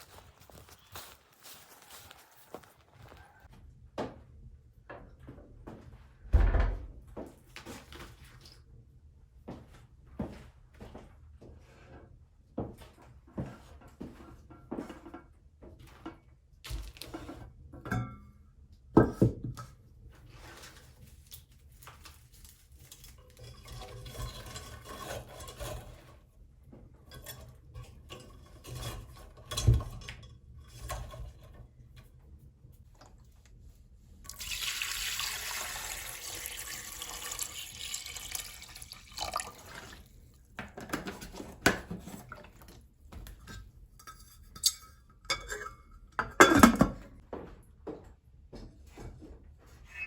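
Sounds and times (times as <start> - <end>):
water splashing and pouring: 34.3 - 40.3
dishes clattering: 43.4 - 47.1.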